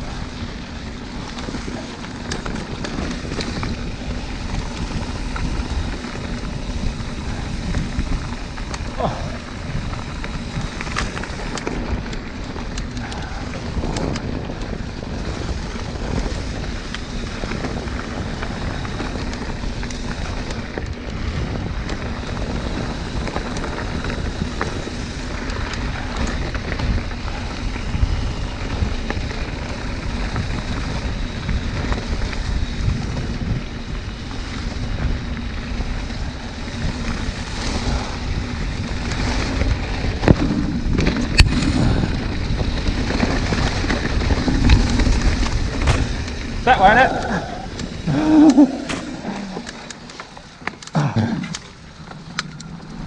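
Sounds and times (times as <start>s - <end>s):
rumble and rattle over rough ground: 0.0s - 53.0s
wind buffeting microphone: 0.0s - 53.0s.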